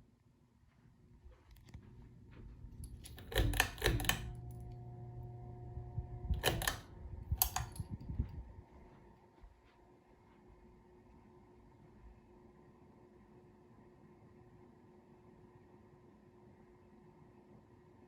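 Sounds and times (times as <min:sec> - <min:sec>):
ceiling fan hum: 0:00.5 - 0:18.0
fan pull-chain switch clicking: 0:02.8 - 0:08.1.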